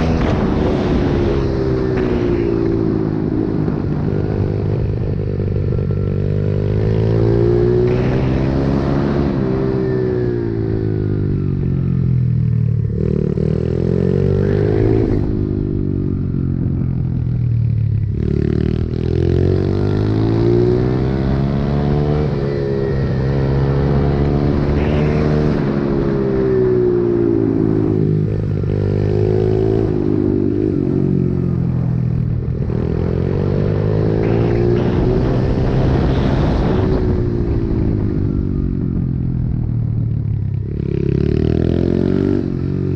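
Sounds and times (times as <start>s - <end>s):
pit bike engine revving: 23.3s - 26.8s, 32.5s - 37.9s.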